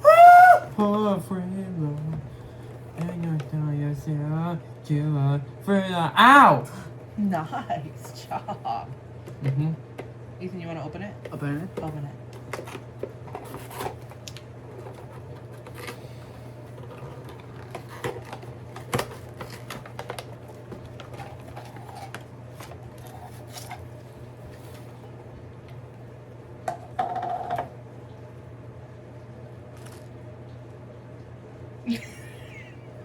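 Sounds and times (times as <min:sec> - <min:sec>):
steady low hum: 0:00.0 - 0:33.0
packaging crinkling and tearing: 0:16.7 - 0:24.9.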